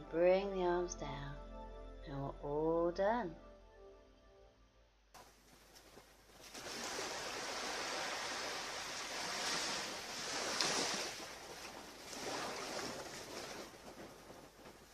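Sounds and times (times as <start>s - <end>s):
waves breaking on beach: 5.8s - 14.9s.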